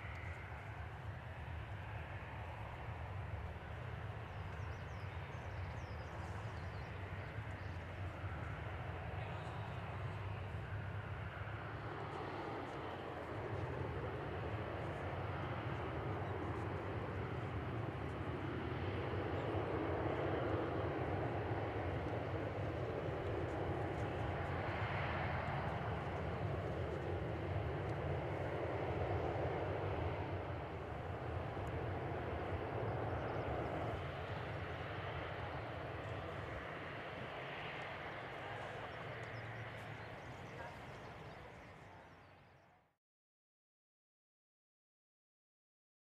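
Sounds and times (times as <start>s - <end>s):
jet engines roaring: 0.0s - 42.0s.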